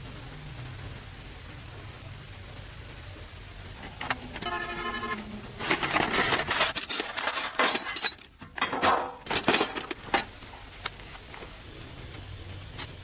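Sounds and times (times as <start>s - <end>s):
metal tools clattering: 4.4s - 10.3s.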